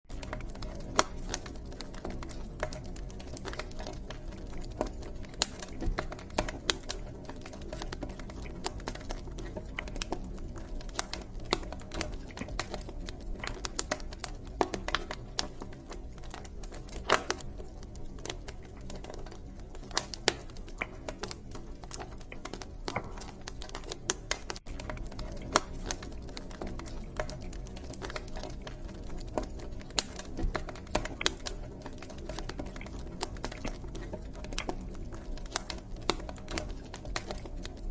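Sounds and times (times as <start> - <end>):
low rumble of burning fire: 0.1 - 37.9
wood fire pops and snaps: 0.1 - 37.9.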